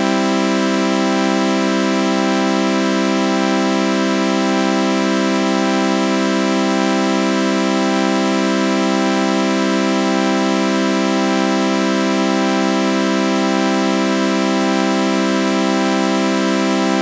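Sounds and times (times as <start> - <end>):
synthesized sawtooth chord: 16.7 - 17.0.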